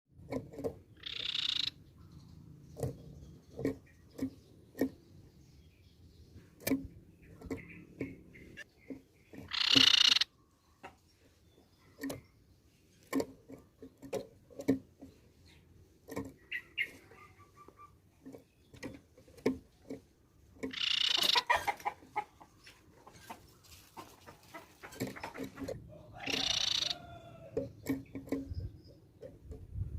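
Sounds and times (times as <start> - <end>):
bird calling in harsh hissy bursts: 9.5 - 10.2, 20.7 - 21.4.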